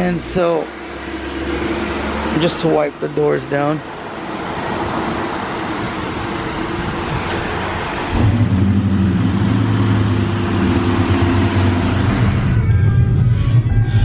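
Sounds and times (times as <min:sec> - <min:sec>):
car engine humming: 0:00.0 - 0:14.0.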